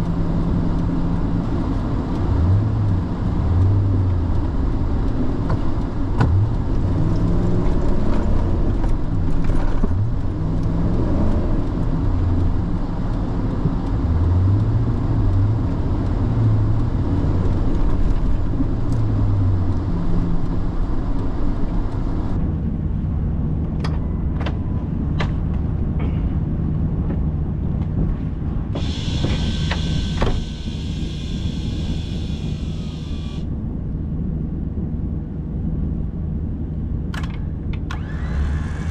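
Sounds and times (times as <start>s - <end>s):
car engine revving: 28.8s - 33.5s
electric winch whirring: 28.8s - 33.5s, 37.9s - 38.9s.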